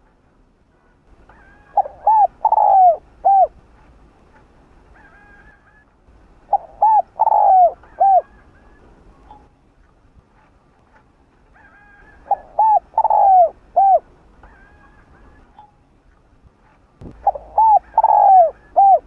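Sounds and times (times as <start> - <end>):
dove cooing: 1.2 - 3.6, 4.9 - 9.4, 11.6 - 15.6, 17.0 - 19.0
faint bird chirps: 17.0 - 19.0.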